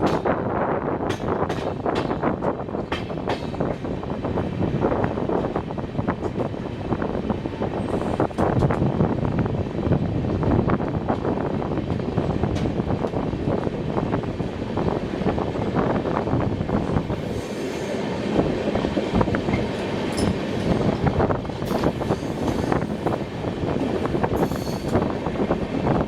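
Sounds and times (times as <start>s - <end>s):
train carriage rumble and rattle: 0.0s - 26.0s
train wheels clattering: 1.0s - 4.5s, 16.8s - 26.0s
high wheel squeals: 24.4s - 25.0s.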